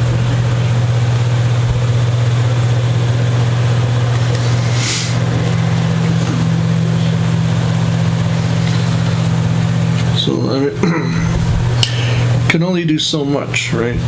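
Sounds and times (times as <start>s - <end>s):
steady low hum: 0.0s - 14.0s
short hiss: 4.4s - 5.2s.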